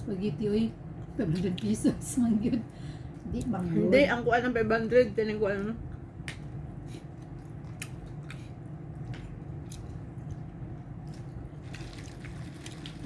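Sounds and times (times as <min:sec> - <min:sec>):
steady low hum: 0:00.0 - 0:13.0
person chewing and mouth smacks: 0:05.9 - 0:12.9.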